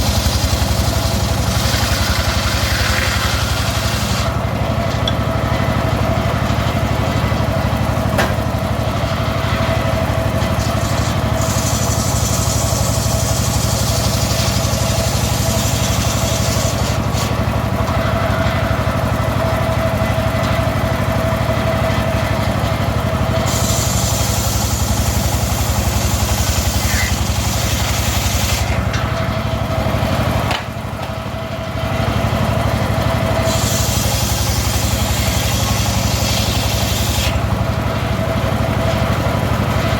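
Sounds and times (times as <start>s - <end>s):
circular saw humming: 0.0s - 22.2s, 23.3s - 29.7s
saw blade cutting wood: 0.0s - 31.6s, 32.7s - 39.9s.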